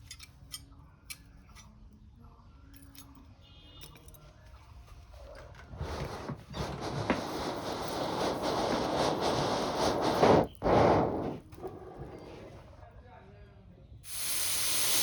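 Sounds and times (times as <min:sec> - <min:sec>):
abrasive rasping on steel: 0:05.7 - 0:12.8.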